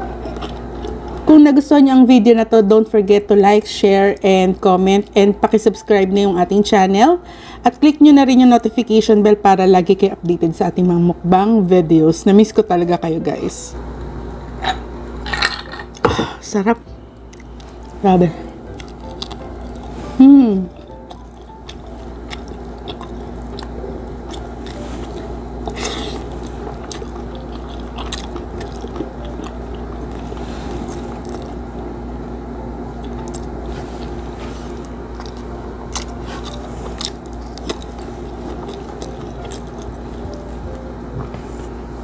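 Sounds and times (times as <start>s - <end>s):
person chewing food: 0.1s - 1.3s, 17.3s - 31.7s, 33.0s - 40.8s.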